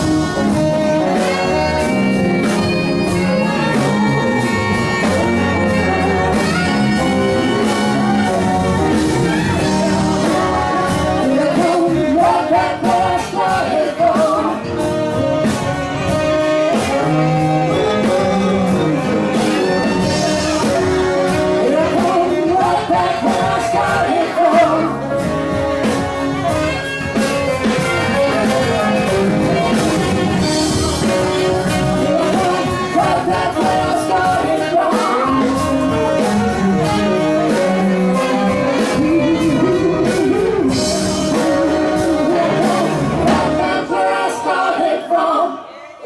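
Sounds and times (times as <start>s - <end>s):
blues-rock band playing: 0.0s - 45.1s
person singing: 0.0s - 46.0s.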